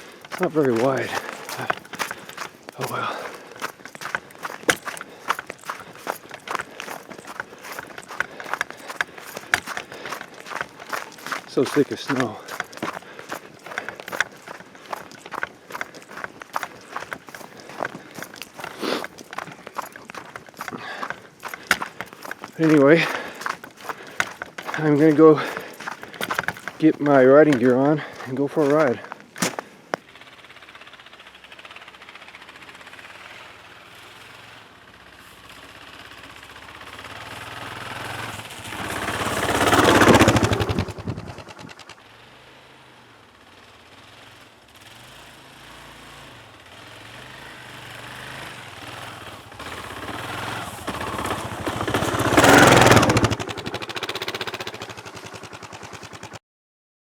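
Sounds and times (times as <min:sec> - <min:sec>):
motorcycle engine thumping: 0:38.7 - 0:41.9, 0:49.5 - 0:56.4.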